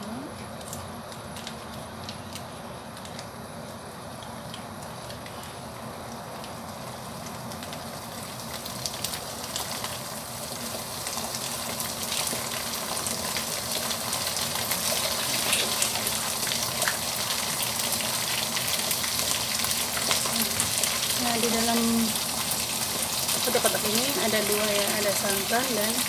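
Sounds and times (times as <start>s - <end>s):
curry paste sizzling in hot oil: 4.2s - 26.0s
sharp pops of frying: 6.4s - 26.0s.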